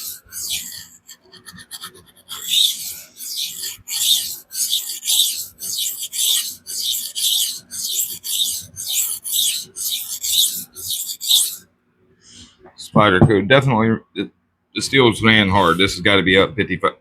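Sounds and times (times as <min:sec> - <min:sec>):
knife scraping on sharpening stone: 0:00.0 - 0:11.6.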